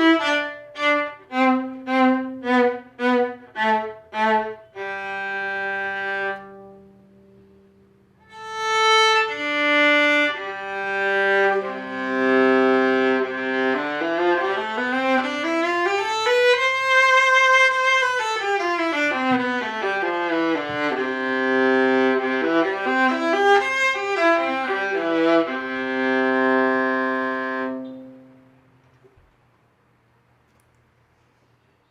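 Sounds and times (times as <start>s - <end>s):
bowed viola: 0.0s - 7.3s, 8.2s - 28.6s.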